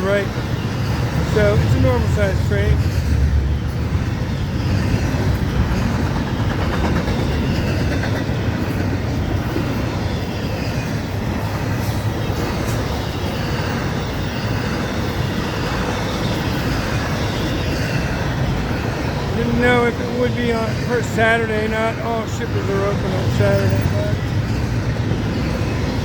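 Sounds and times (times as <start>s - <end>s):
freight train cars rolling: 0.0s - 26.0s.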